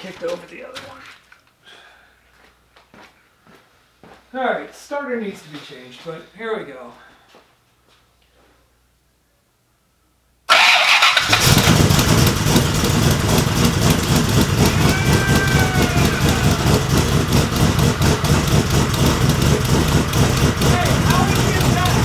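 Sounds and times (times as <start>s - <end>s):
car engine starting and running: 10.5s - 22.0s.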